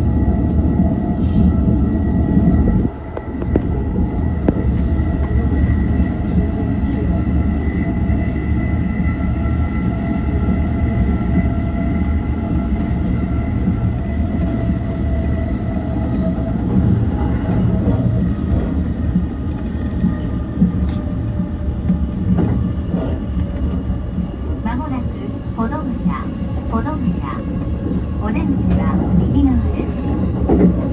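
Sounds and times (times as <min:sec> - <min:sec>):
high train whine: 0:00.0 - 0:30.9
wheels rumbling on rail: 0:00.0 - 0:30.9.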